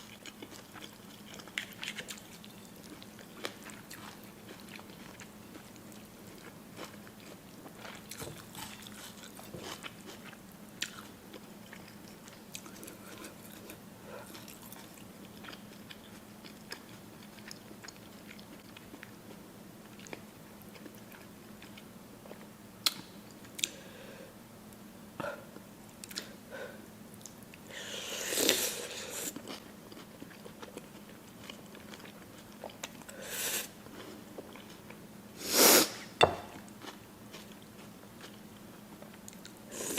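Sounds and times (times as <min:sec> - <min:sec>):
chewing and biting: 0:00.0 - 0:19.4, 0:29.3 - 0:33.0
faint steady hum: 0:00.0 - 0:39.9.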